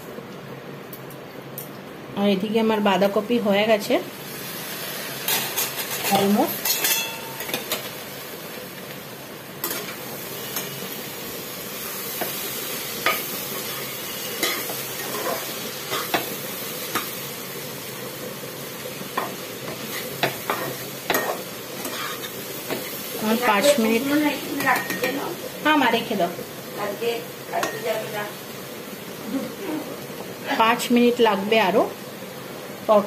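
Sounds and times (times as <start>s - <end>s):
vegetables sizzling in a pan: 0.0s - 33.0s
spatula scraping a pan: 13.0s - 16.2s, 19.7s - 23.0s.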